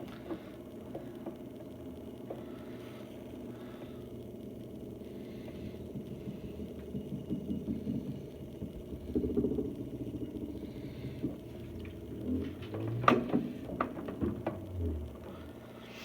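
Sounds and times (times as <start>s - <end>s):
washing machine running: 4.7s - 16.0s.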